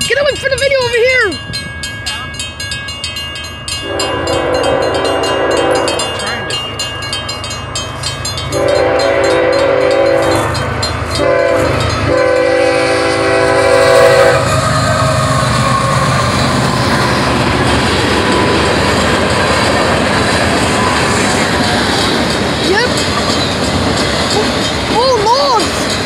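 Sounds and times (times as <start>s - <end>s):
level crossing bell ringing: 0.0s - 12.2s
locomotive horn blasts: 3.8s - 6.2s, 8.5s - 16.4s
freight cars rolling with wheel clatter: 14.4s - 26.0s.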